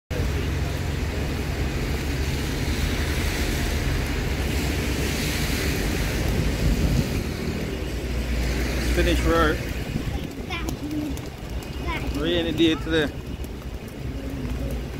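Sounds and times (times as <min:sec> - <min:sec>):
rain on wet street: 0:00.1 - 0:14.9
traffic: 0:00.1 - 0:14.9
wind on microphone: 0:01.9 - 0:12.2.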